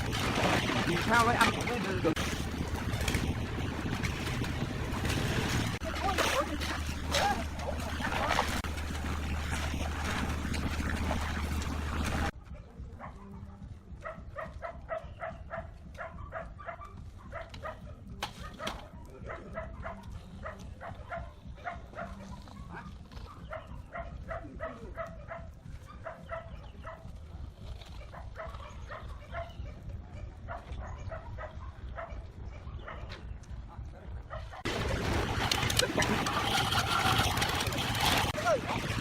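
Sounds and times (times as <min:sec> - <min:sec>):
steady low rumble: 0:00.0 - 0:18.2.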